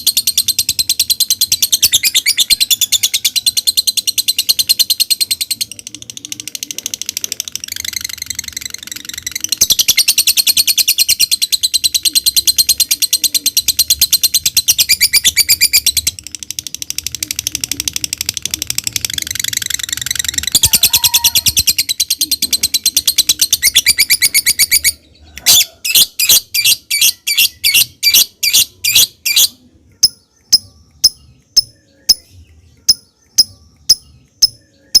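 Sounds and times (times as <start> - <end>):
bird high-pitched rattling trill: 0.0 - 25.0, 25.6 - 35.0
bird sharp chirps: 18.5 - 35.0.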